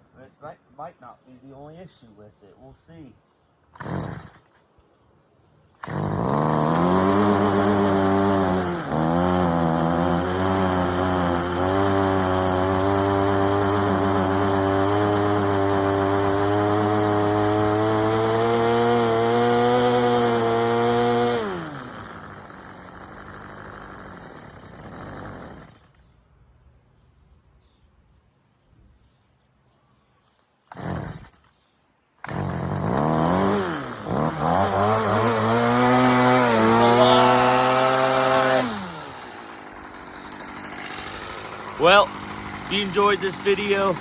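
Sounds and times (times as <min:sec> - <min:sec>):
string trimmer engine revving: 0:03.8 - 0:04.6, 0:05.8 - 0:26.0, 0:30.7 - 0:31.5, 0:32.2 - 0:44.0.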